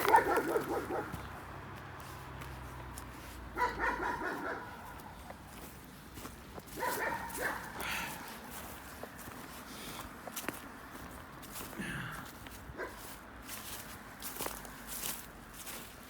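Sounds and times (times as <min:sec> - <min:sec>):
dog barking: 0:00.0 - 0:01.2, 0:03.5 - 0:05.2, 0:06.7 - 0:08.3, 0:12.8 - 0:13.1.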